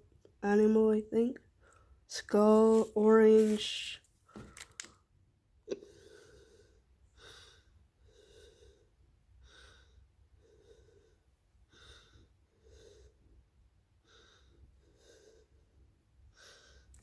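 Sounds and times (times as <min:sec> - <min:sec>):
soft breathing: 0:05.8 - 0:17.0.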